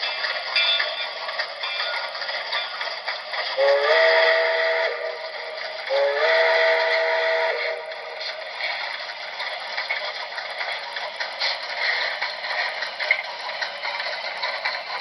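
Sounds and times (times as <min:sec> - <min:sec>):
model train steam whistle: 0:03.6 - 0:08.2.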